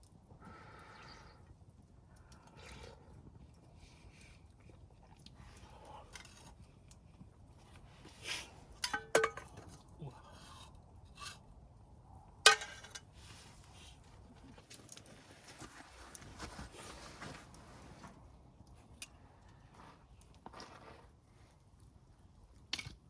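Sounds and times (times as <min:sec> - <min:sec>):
metal cookware clinking: 0:08.8 - 0:09.6, 0:12.5 - 0:13.0.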